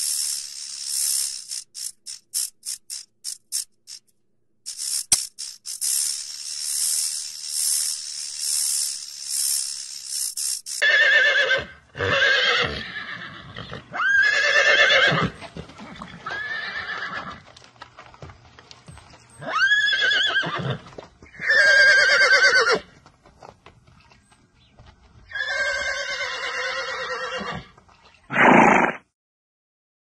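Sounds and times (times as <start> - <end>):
horse whinnying: 10.8 - 17.4, 19.4 - 22.9, 25.3 - 29.0.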